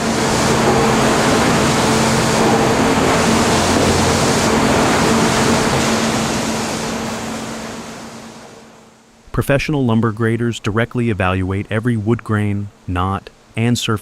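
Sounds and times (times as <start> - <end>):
sawmill machinery running: 0.0 - 8.8
electric motor hum: 0.0 - 8.9.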